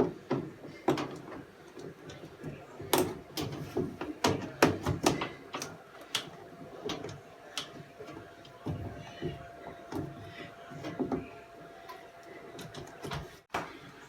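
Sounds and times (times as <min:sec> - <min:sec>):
knocks and clatter of machine parts: 0:00.0 - 0:11.3.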